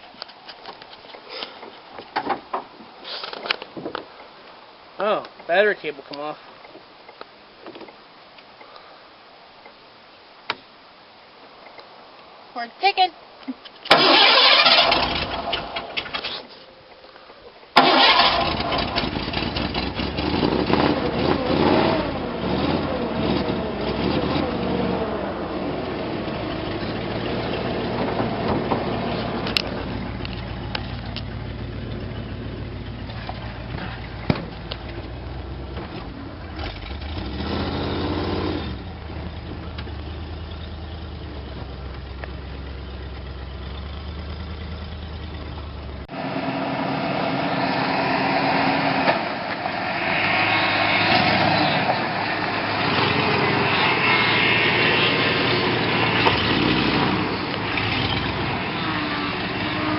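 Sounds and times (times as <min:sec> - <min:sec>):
truck engine running: 0:13.9 - 0:16.2, 0:17.8 - 0:59.9.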